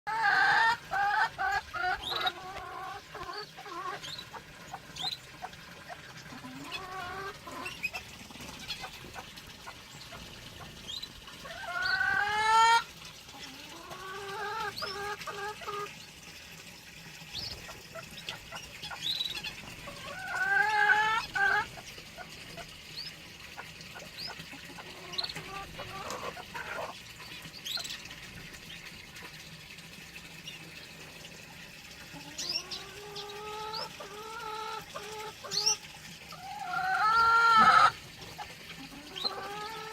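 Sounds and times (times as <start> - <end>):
small birds chirping: 0.3 - 16.2, 17.3 - 28.9, 32.2 - 35.8.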